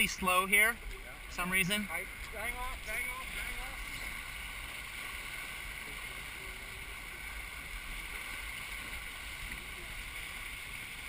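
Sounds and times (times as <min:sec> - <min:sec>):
water rushing along hull: 0:00.0 - 0:11.0.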